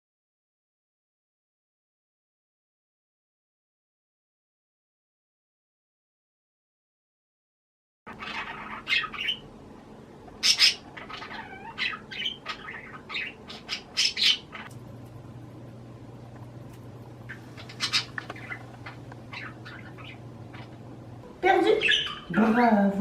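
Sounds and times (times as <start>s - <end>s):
budgerigar chirping and chattering: 8.1s - 9.5s, 10.4s - 14.7s, 17.3s - 20.9s, 21.6s - 22.5s
faint steady low hum: 8.1s - 23.0s.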